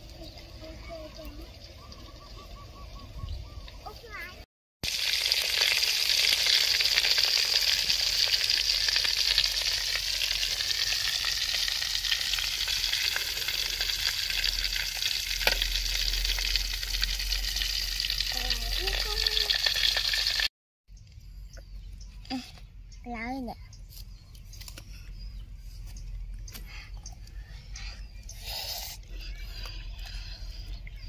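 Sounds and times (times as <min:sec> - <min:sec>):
food sizzling in hot oil: 0:04.8 - 0:20.5.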